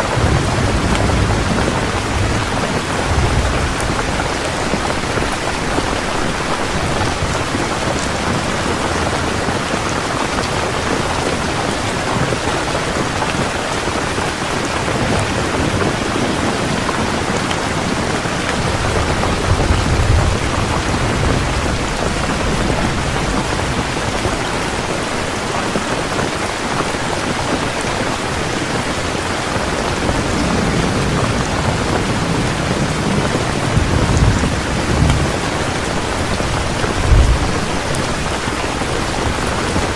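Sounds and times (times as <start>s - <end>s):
thunder rolling: 0.0s - 9.6s, 14.8s - 25.8s, 29.6s - 39.9s
heavy rain falling: 0.0s - 39.9s.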